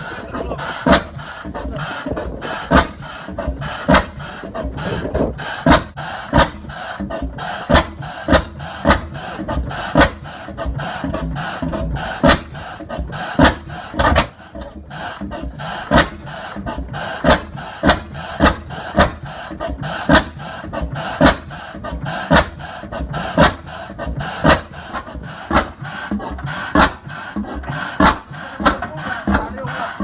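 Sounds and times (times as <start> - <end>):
stationary engine firing beats: 0.0 - 14.4, 15.0 - 30.0.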